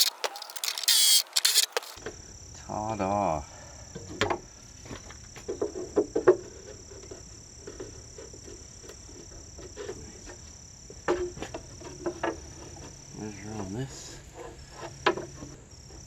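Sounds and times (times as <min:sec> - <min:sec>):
wooden pieces and tools clattering: 0:00.0 - 0:02.0.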